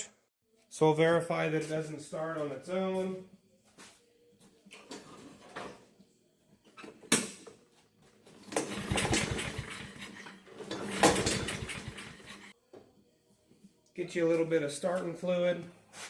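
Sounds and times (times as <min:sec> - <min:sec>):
mower engine pull-started: 0:08.4 - 0:12.5.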